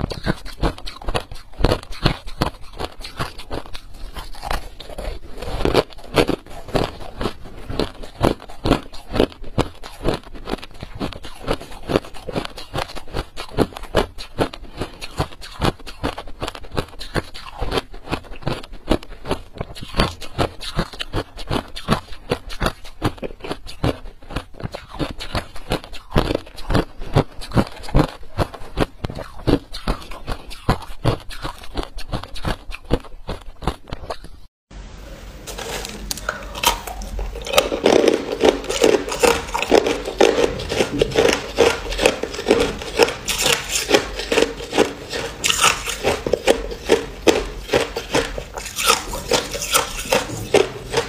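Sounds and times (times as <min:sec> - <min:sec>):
person crunching ice: 0:00.0 - 0:19.9, 0:35.5 - 0:51.0.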